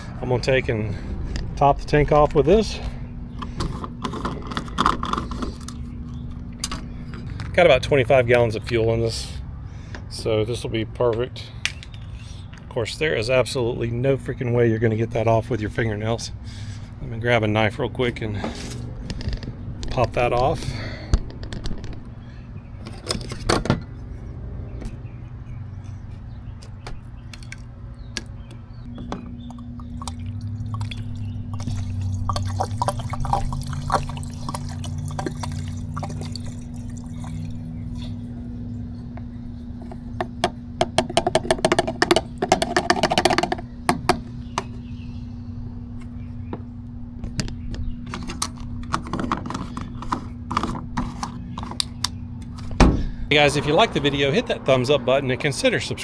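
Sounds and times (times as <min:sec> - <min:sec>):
steady low hum: 0:00.0 - 0:56.0
liquid glugging from bottle: 0:29.4 - 0:38.2.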